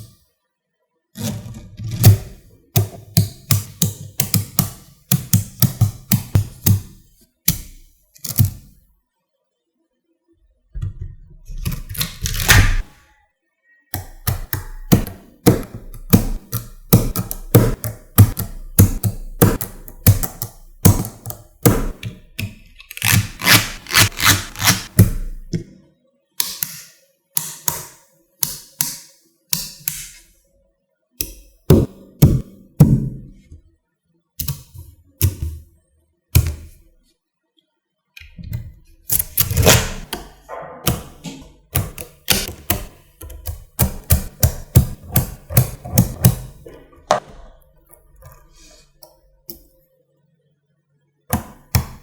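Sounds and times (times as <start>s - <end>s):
magnetic balls clicking together: 40.9s - 46.6s.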